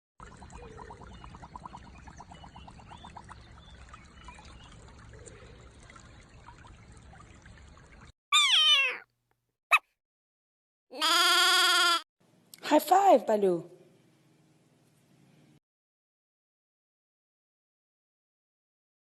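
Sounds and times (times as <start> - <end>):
wet trickling gurgling: 0.2 - 8.1
cat meowing: 8.3 - 9.1.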